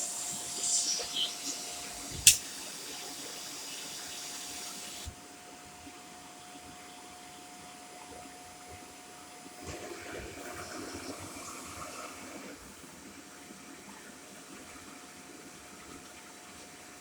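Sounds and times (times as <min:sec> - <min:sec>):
vacuum cleaner running: 0:00.0 - 0:06.0.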